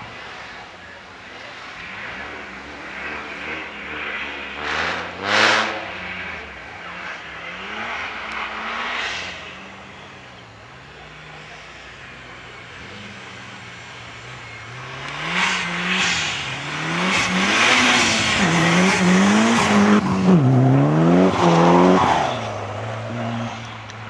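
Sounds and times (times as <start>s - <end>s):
rally car engine revving past: 14.8s - 23.7s.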